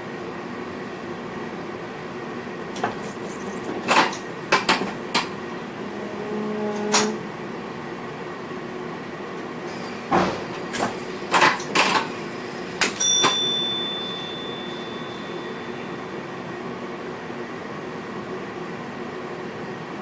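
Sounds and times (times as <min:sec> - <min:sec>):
clicks and knocks in train cab: 0:03.7 - 0:05.4, 0:10.1 - 0:12.1
high ringing ding: 0:13.0 - 0:16.1.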